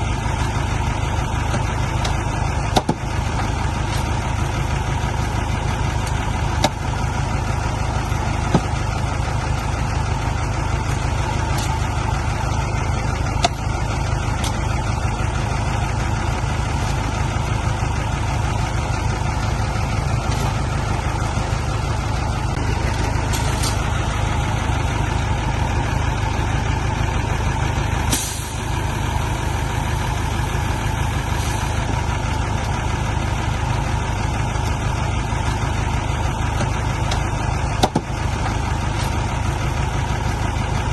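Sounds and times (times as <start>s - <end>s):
diesel engine rumbling: 0.0s - 40.9s
short hiss: 28.1s - 28.6s
sharp knocks: 37.8s - 38.1s.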